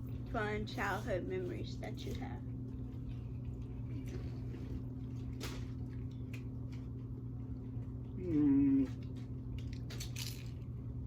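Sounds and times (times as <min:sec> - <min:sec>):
low electrical hum: 0:00.0 - 0:11.0
person humming hmm: 0:08.2 - 0:09.0.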